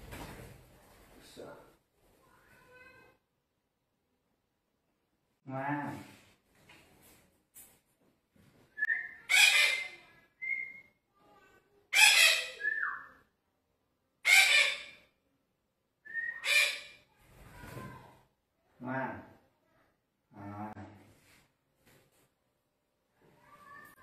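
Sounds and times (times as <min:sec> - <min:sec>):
parakeet harsh calls: 0:09.2 - 0:10.0, 0:11.9 - 0:12.6, 0:14.2 - 0:15.1, 0:16.4 - 0:17.1.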